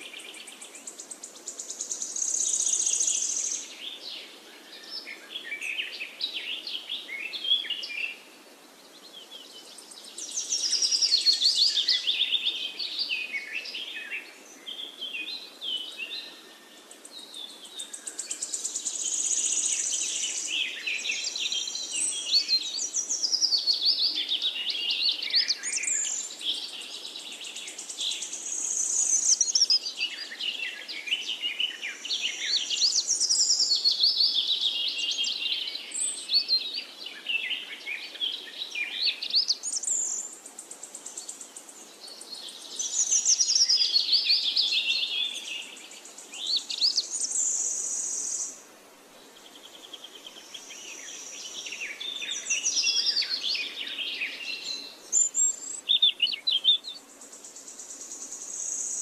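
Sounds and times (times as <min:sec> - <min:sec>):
birds singing and chirping: 0:00.0 - 0:48.6, 0:49.3 - 0:59.0.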